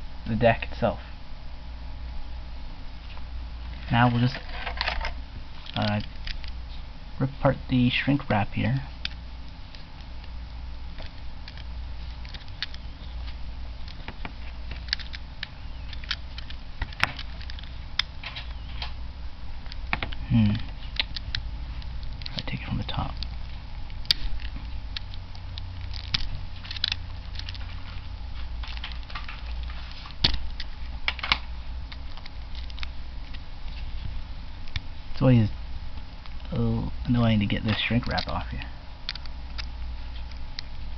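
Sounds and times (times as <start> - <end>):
low steady hum: 0.0 - 40.9
sharp plastic snaps: 11.0 - 19.0, 19.6 - 33.4, 37.5 - 40.8
plastic shrink wrap crinkling: 19.6 - 35.2.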